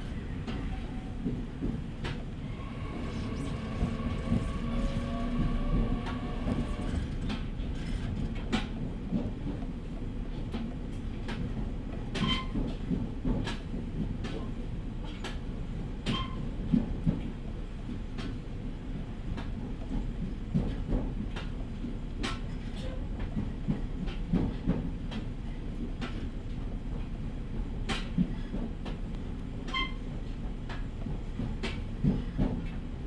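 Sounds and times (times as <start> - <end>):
train rumbling: 0.0 - 33.0
wheels clacking over rail joints: 0.5 - 8.7.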